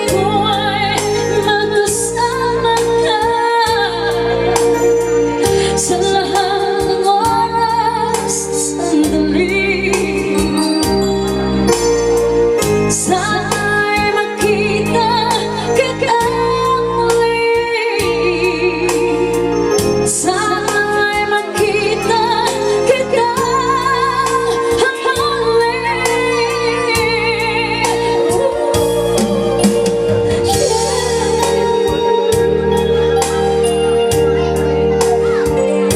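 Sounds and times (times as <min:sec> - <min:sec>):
bass line: 0:00.0 - 0:35.9
electronic organ keyboard: 0:00.0 - 0:35.9
person singing with vibrato: 0:12.9 - 0:35.9.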